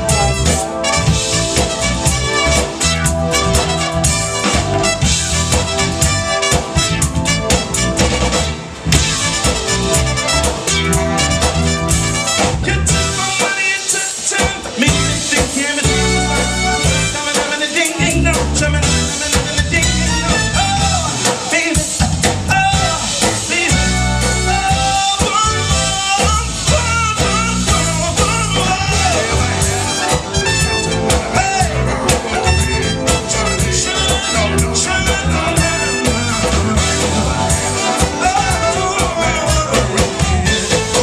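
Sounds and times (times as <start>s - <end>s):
bass line: 0.0s - 13.8s, 14.4s - 41.0s
soul band playing: 0.0s - 41.0s
person singing: 12.6s - 41.0s.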